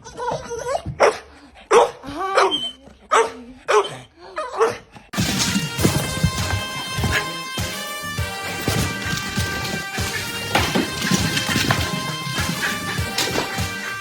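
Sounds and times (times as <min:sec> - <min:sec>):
dog barking: 0:01.0 - 0:04.8, 0:08.6 - 0:13.8
music: 0:05.2 - 0:14.0.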